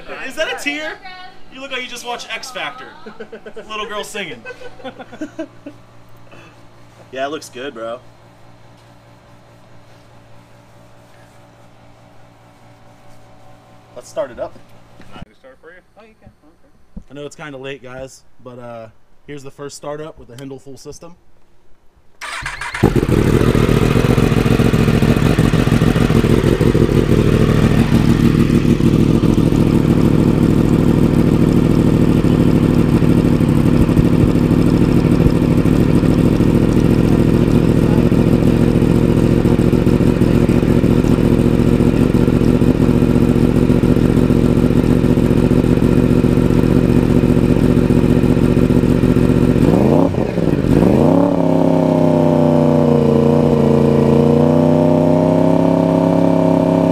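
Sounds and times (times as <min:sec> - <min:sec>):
motorcycle engine idling: 0:22.2 - 0:51.9.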